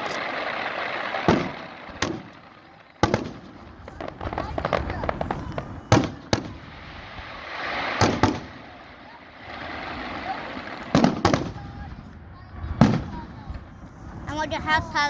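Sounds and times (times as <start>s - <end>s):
firework shells bursting: 0.0s - 11.7s
firework crackling: 0.0s - 15.0s.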